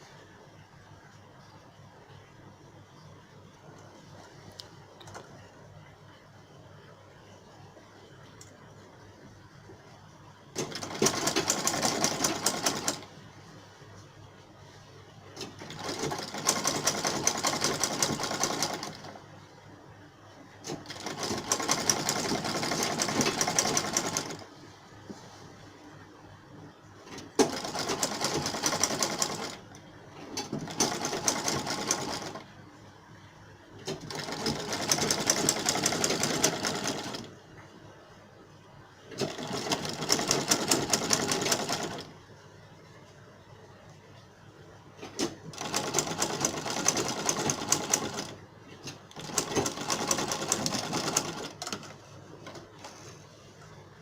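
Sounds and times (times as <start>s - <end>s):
sewing machine needle clatter: 45.0s - 52.6s.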